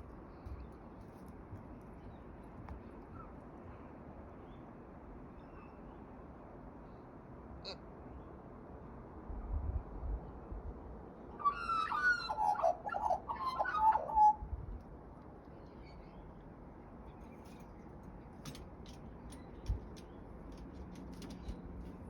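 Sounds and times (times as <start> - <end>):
bird warbling song: 11.4 - 14.4.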